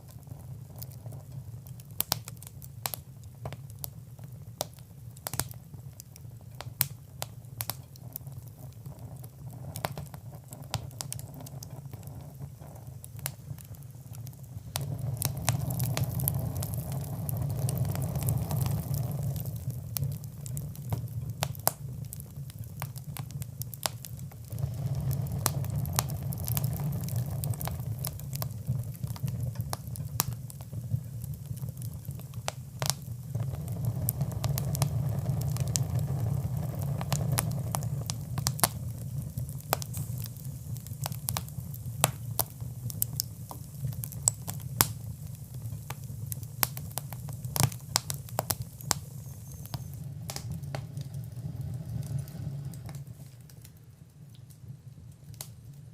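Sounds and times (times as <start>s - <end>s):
fire crackling and popping: 0.0s - 55.9s
steady low rumble: 14.3s - 21.0s, 22.8s - 31.2s, 46.6s - 53.7s.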